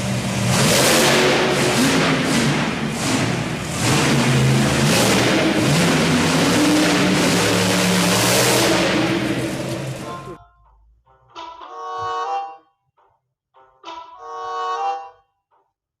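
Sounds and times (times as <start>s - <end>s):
truck engine revving: 0.0s - 10.4s.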